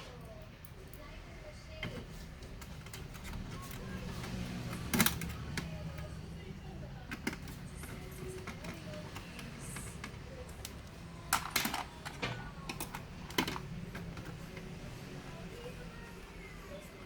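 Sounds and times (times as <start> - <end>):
laptop parts clicking: 1.8 - 6.2, 6.8 - 15.0.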